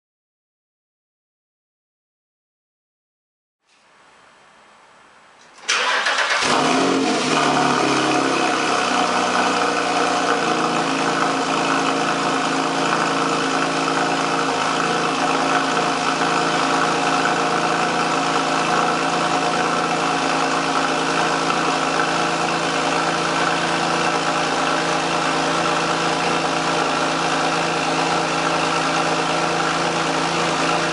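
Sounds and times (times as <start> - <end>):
starter cranking: 5.6 - 6.6
car engine revving then idling: 5.6 - 30.9.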